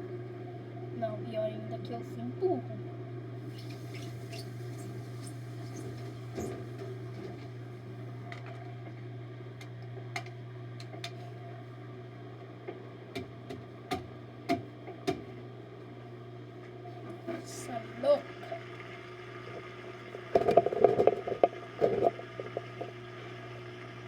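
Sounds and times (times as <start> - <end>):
washing machine spinning: 3.4 - 8.9.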